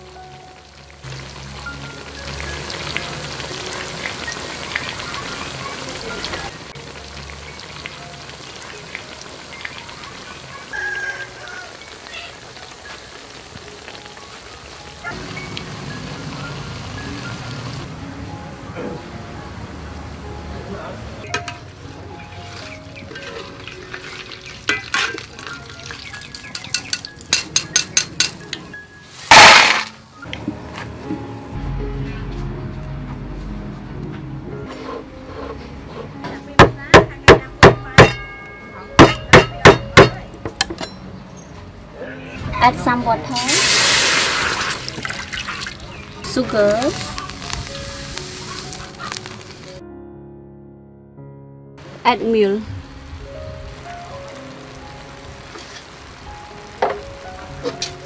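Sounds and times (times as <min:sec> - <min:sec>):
food sizzling in oil: 0:00.0 - 0:17.9, 0:21.2 - 0:30.3, 0:42.8 - 0:49.8, 0:51.9 - 0:58.0
banana slices deep-frying: 0:00.0 - 0:18.0, 0:20.6 - 0:28.4, 0:29.0 - 0:30.7, 0:43.3 - 0:49.8, 0:54.4 - 0:58.0
metal utensils clinking on pan: 0:22.2 - 0:30.0, 0:37.9 - 0:41.1, 0:55.5 - 0:56.0
loud rush of hiss: 0:43.5 - 0:44.8.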